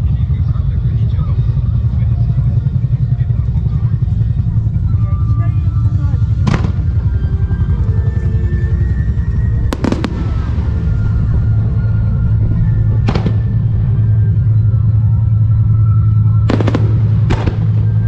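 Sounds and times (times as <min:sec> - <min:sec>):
firework shells bursting: 0:16.5 - 0:17.9.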